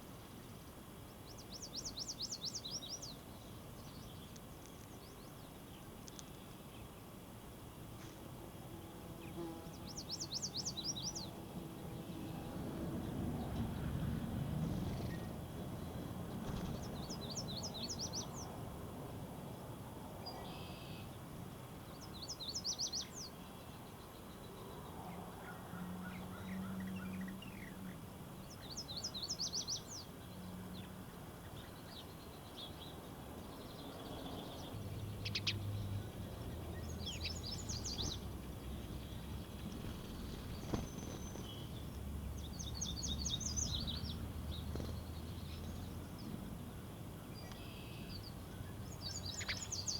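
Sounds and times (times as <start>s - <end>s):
low background rumble: 33.5s - 49.4s.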